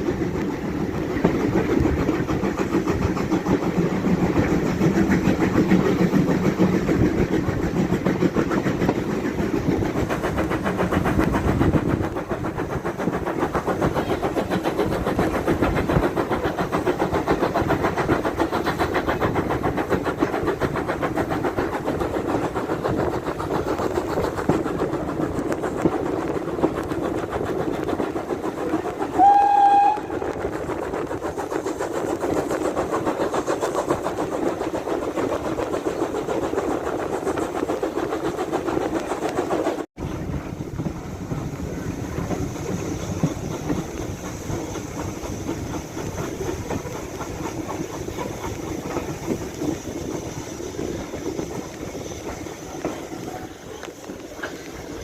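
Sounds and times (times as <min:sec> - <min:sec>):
train rumbling: 0:00.0 - 0:55.0
wheels clacking on rails: 0:00.0 - 0:55.0
train whistle: 0:29.2 - 0:30.4.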